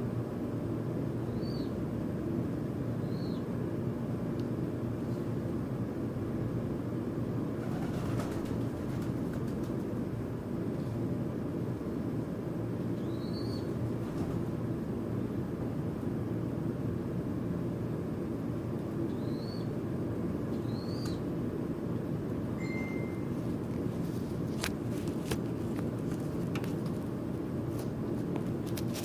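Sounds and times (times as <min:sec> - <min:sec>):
bird chirps: 0:01.3 - 0:01.7, 0:13.0 - 0:13.7, 0:19.1 - 0:19.7, 0:20.5 - 0:21.2
whistled note: 0:22.6 - 0:23.3.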